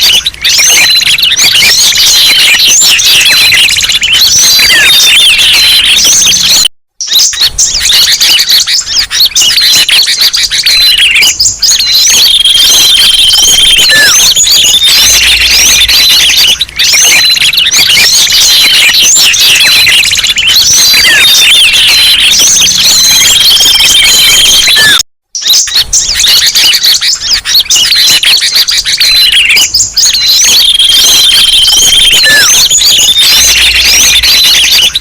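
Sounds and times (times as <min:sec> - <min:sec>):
songbirds chirping and trilling: 0:00.0 - 0:35.0.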